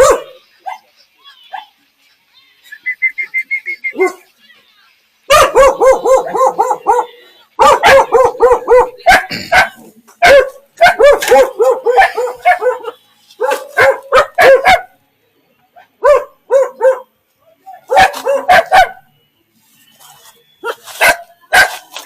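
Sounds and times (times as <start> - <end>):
dog barking: 0.0 - 0.9, 3.9 - 4.3, 5.3 - 15.0, 15.8 - 17.1, 17.9 - 19.1, 20.6 - 21.9.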